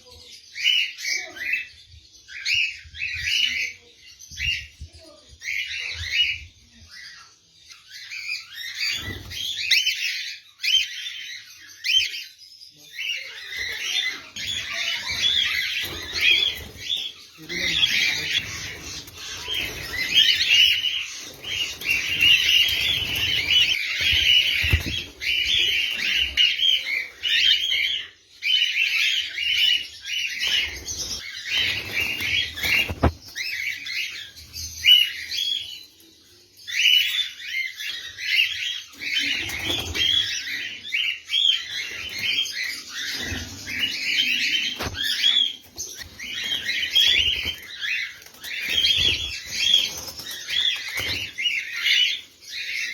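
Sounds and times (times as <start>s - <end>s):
lovebirds chattering shrilly: 8.0s - 35.8s, 36.7s - 52.9s
wing flutters: 14.4s - 26.4s.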